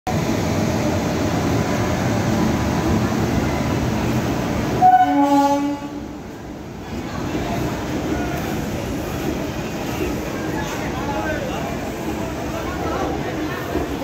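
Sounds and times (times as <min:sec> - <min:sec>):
train rumbling past: 0:00.1 - 0:14.0
train horn: 0:04.8 - 0:06.1.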